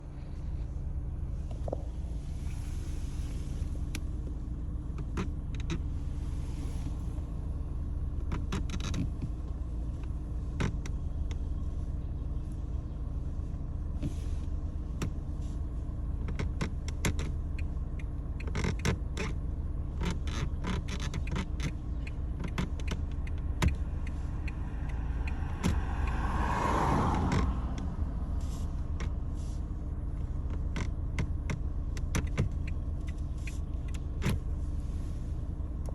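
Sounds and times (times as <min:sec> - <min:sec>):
road and engine rumble: 0:00.0 - 0:35.9
creaks and clicks from car trim: 0:01.5 - 0:02.0, 0:03.8 - 0:05.9, 0:08.1 - 0:11.7, 0:13.9 - 0:34.7.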